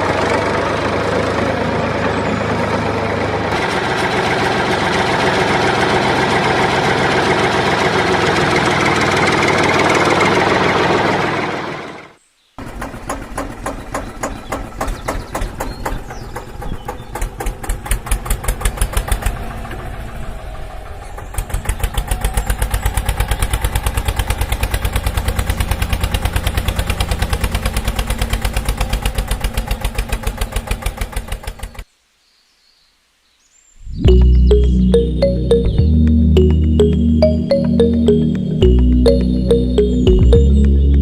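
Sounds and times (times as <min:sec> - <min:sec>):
tractor engine chugging: 0:00.0 - 0:12.0, 0:12.6 - 0:31.8.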